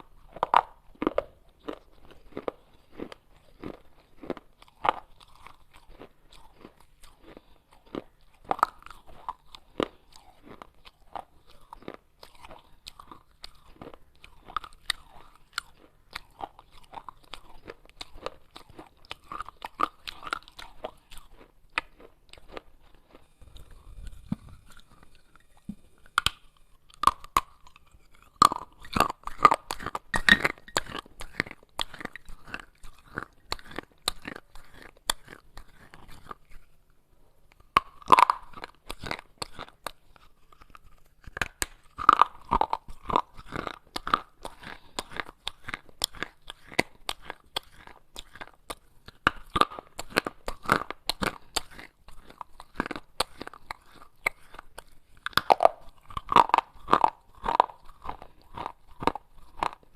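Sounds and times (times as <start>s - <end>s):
person chewing gritty crunches: 0.0s - 59.9s.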